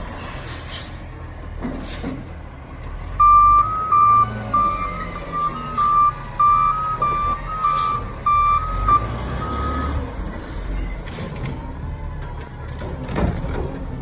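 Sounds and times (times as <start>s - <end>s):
diesel engine running: 1.4s - 14.0s
truck backup alarm beeping: 3.1s - 12.0s.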